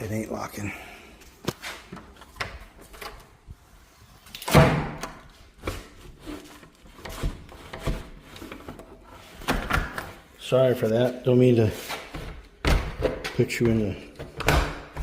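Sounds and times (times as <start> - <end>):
door banging shut: 4.5 - 5.2.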